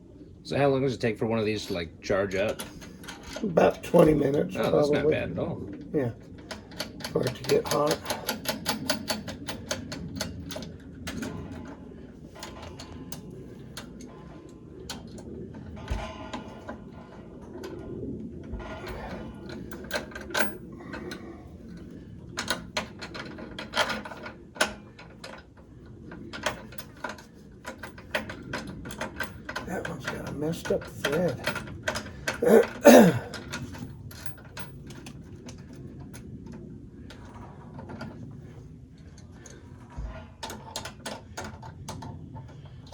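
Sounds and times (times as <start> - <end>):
hand tools clicking and clinking: 6.3 - 17.8, 26.1 - 35.1.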